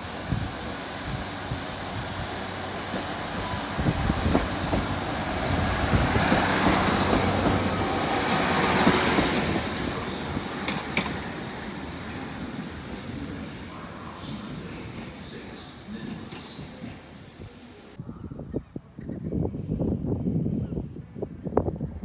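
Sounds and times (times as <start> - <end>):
diesel train running past: 0.0 - 18.0
wheels knocking over rail joints: 10.3 - 11.5.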